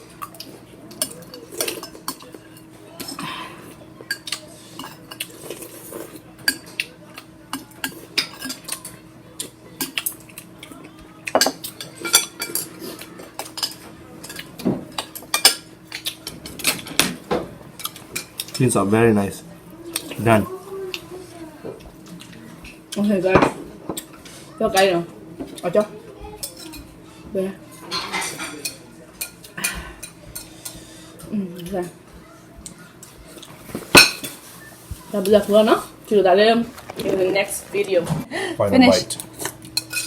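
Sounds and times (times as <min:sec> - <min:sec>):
cutlery clinking against a bowl: 0:00.0 - 0:03.3, 0:04.0 - 0:18.8, 0:21.8 - 0:32.0, 0:32.6 - 0:34.5, 0:39.0 - 0:40.0.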